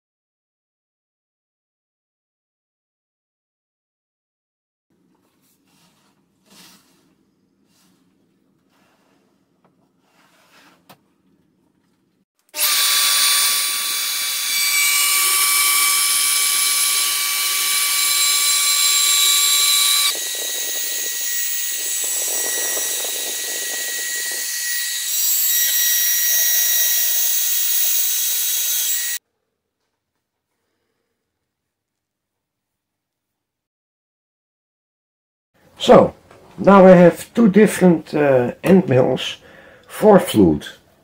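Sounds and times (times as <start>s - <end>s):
milling machine grinding whine: 12.6s - 29.2s.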